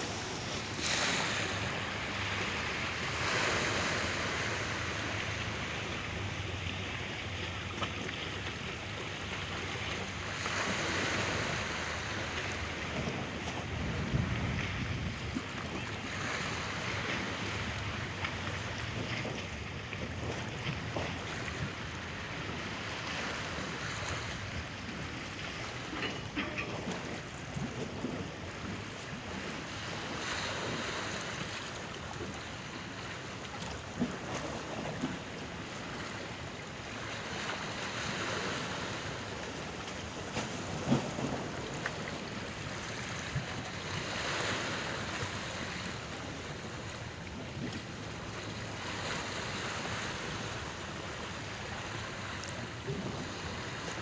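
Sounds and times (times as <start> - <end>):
sea waves surging: 0.0 - 54.0
wind buffeting microphone: 12.9 - 16.0.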